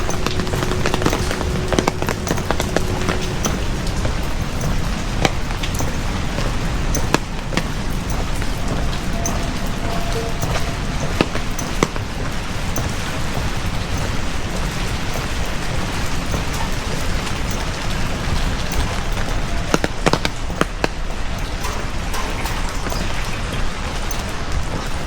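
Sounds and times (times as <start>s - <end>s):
sharp drip taps: 0.0s - 24.8s
heavy rain falling: 0.0s - 25.0s.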